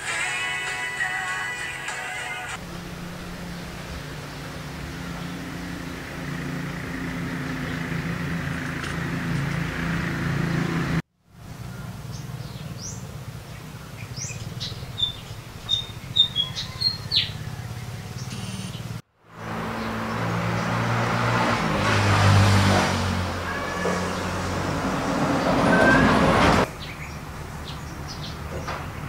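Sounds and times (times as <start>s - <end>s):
low hum with hiss: 2.6s - 6.8s
small bird chirping: 11.6s - 19.0s.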